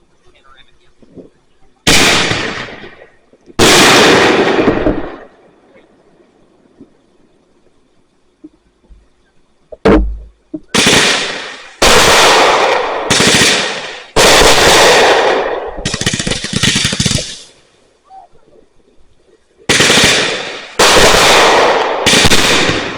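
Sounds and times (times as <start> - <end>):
fireworks crackling: 0.0 - 22.9
fireworks bangs: 0.2 - 5.8, 9.7 - 17.7, 19.7 - 22.9.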